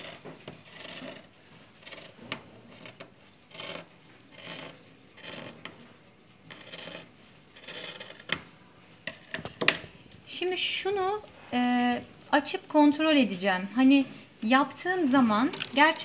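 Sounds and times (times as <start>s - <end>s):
scissors cutting cloth: 0.0s - 5.7s, 6.5s - 8.4s.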